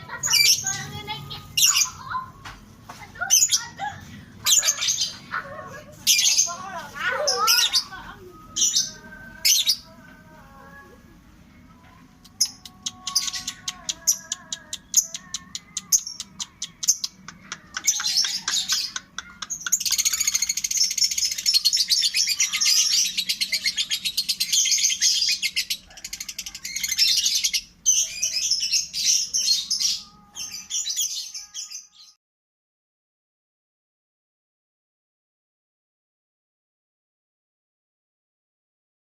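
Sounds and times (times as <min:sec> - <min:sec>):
lovebird chattering song: 0:12.3 - 0:31.9.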